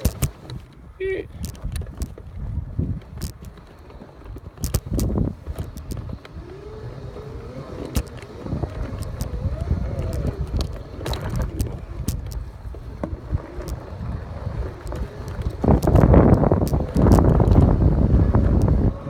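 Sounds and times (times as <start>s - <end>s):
electric motor whining: 4.7s - 19.0s.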